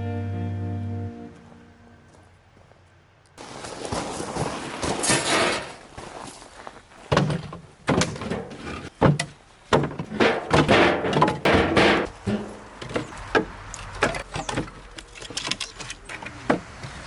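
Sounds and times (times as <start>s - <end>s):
sharp knocks and thuds: 7.1s - 15.6s.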